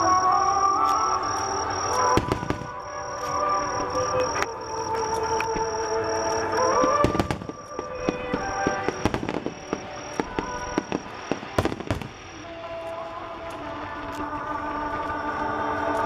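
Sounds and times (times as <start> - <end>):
music playing: 0.0 - 16.0
fireworks cracking and popping: 1.8 - 4.5, 6.7 - 14.2.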